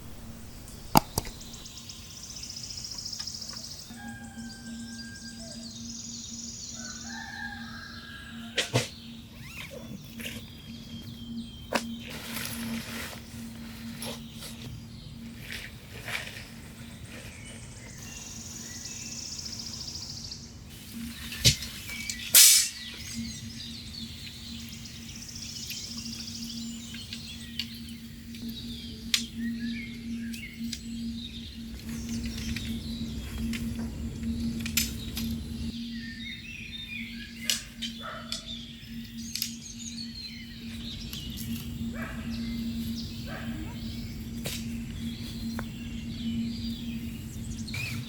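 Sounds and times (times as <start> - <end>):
birds chirping and trilling: 0.0 - 48.0
steady low hum: 0.0 - 48.0
sharp click: 0.1 - 1.7.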